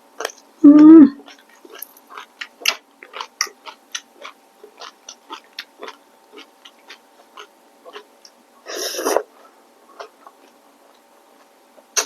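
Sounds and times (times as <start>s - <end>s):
person chewing with wet mouth smacks: 1.2s - 8.4s.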